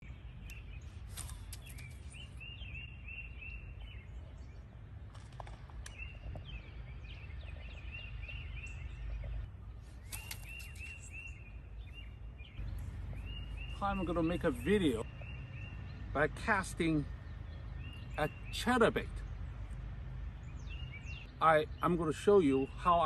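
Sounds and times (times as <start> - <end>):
bird chirping: 0.0 - 23.0
low outdoor rumble: 0.0 - 23.0
sharp clicks: 10.0 - 10.9.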